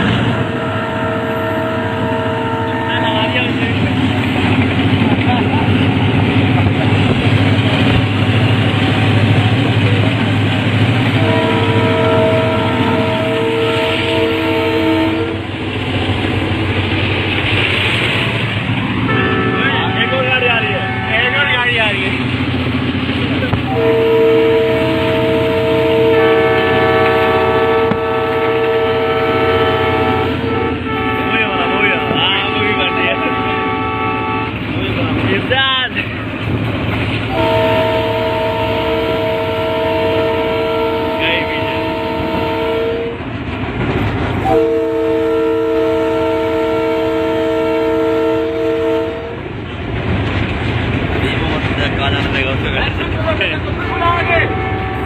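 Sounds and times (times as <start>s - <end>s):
train rumble: 0.0s - 55.0s
locomotive air horn: 0.1s - 3.4s, 11.2s - 15.4s, 19.1s - 21.3s, 23.7s - 34.5s, 37.3s - 43.2s, 44.4s - 49.4s, 54.1s - 55.0s
second horn: 11.2s - 15.4s, 23.7s - 34.5s, 37.3s - 43.2s, 44.5s - 49.4s.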